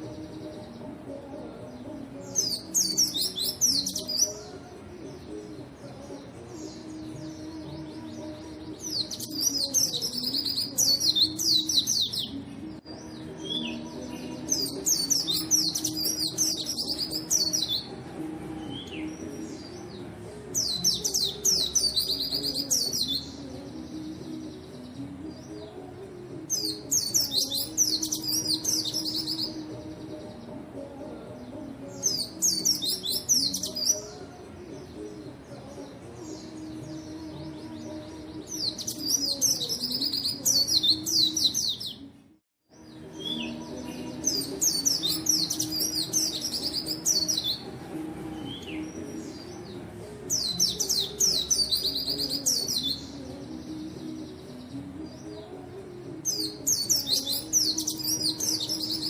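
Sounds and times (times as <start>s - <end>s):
bird twittering song: 1.7s - 17.9s, 18.6s - 30.6s, 31.8s - 34.2s, 42.8s - 47.8s, 48.4s - 55.5s, 56.2s - 59.0s.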